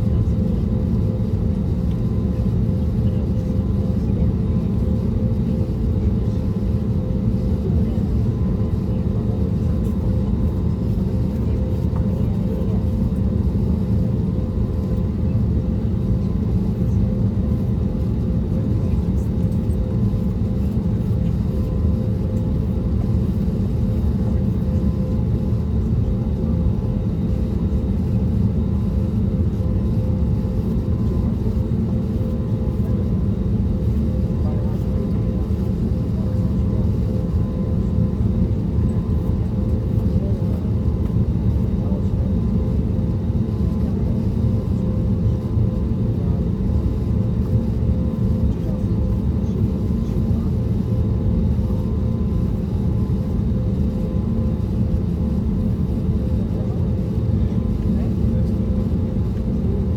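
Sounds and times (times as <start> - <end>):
airplane cabin drone: 0.0 - 59.9.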